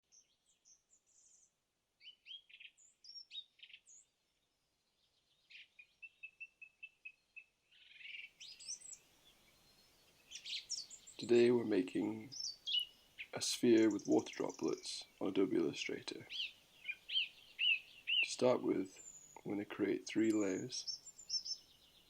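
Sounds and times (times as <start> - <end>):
faint birdsong: 0.0 - 22.0.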